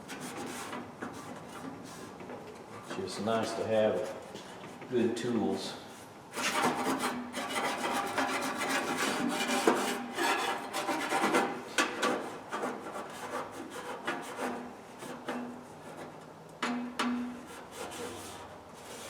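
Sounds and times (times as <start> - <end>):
sandpaper scraping on metal: 0.1 - 2.2, 6.4 - 16.1, 17.4 - 19.0.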